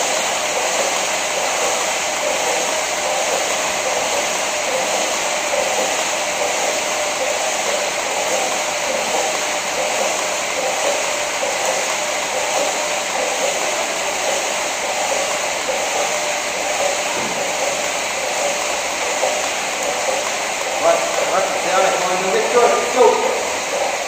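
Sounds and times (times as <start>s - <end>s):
flywheel whirring: 0.0s - 24.0s.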